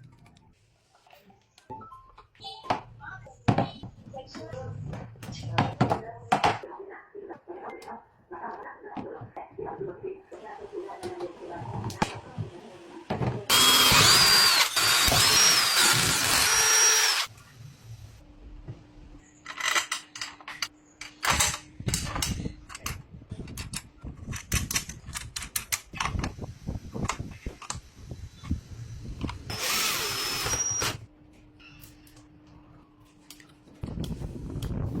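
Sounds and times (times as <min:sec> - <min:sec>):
power drill whining: 0:13.5 - 0:17.3, 0:29.5 - 0:31.0
clicks and knocks of parts handled: 0:19.4 - 0:26.3.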